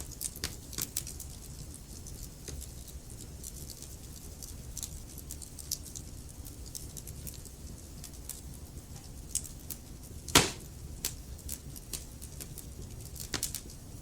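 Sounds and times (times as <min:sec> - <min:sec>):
low rumble of flames: 0:00.0 - 0:14.0
logs crackling and popping: 0:13.2 - 0:13.7.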